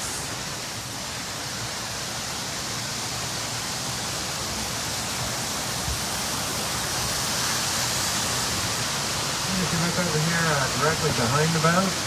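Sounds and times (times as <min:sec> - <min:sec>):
waterfall rushing: 0:07.3 - 0:12.0.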